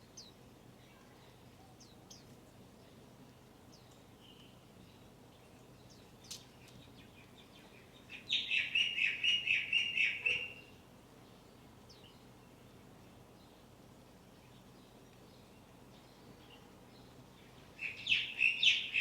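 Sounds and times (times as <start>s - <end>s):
bird chirping: 3.7s - 10.7s, 16.0s - 19.0s.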